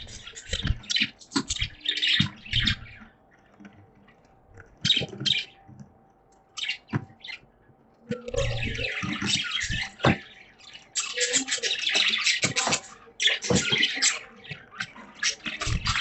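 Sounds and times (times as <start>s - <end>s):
budgerigars chirping: 0.0s - 3.1s, 4.7s - 5.6s, 6.6s - 7.4s, 8.2s - 16.0s.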